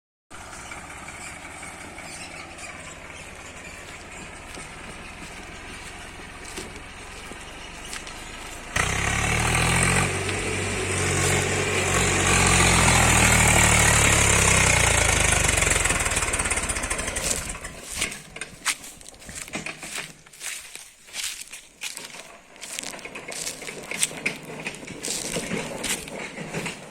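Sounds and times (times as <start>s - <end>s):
tractor diesel engine: 0.3s - 26.9s
crackling and crunching: 16.8s - 26.9s.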